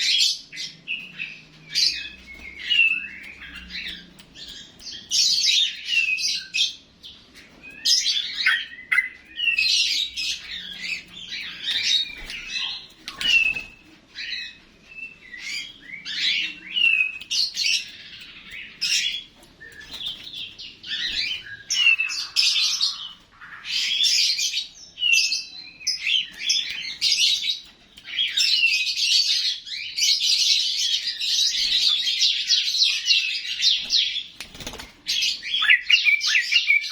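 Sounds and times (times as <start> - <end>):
bulbul chirping song: 35.4 - 36.9.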